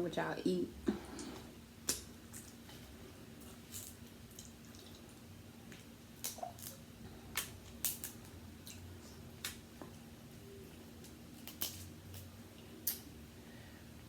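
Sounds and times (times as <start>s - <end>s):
seafood shells clicking and snapping: 5.7s - 9.6s, 11.4s - 13.1s.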